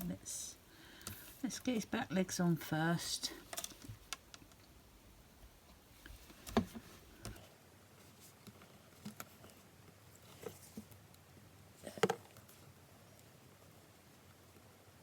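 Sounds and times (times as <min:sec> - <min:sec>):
faint taps of paper and tools: 0:05.7 - 0:07.5.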